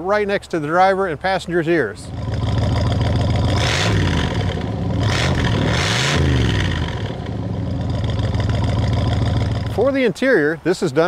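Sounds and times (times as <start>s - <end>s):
car engine idling and revving: 2.0s - 9.9s.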